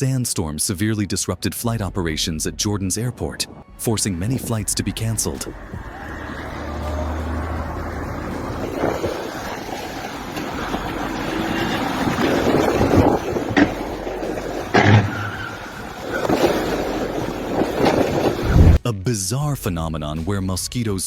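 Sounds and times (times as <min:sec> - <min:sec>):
rushing wind: 0:02.6 - 0:18.8
sharp knocks: 0:12.0 - 0:15.7.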